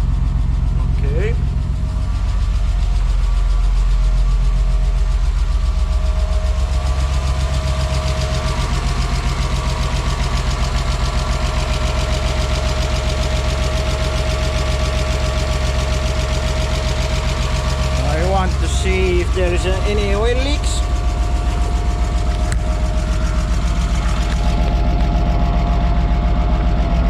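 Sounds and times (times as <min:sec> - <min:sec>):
car engine idling unevenly: 0:00.0 - 0:27.0
steady whine: 0:00.0 - 0:27.0.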